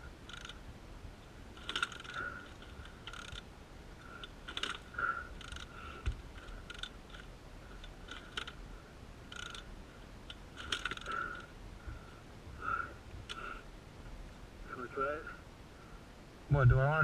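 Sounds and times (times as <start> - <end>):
dirt bike kick-starter clicking: 0.2 - 0.6, 1.5 - 8.6, 9.3 - 11.5.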